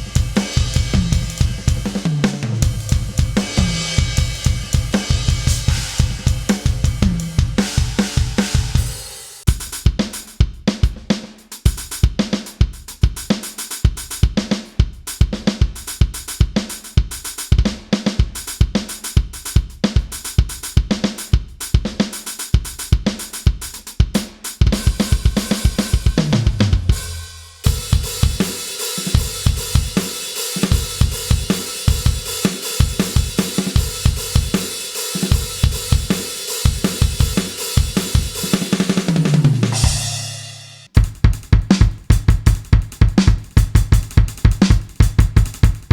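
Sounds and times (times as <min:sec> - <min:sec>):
electronic drum kit beat: 0:00.0 - 0:45.9
tom fill: 0:24.6 - 0:45.9.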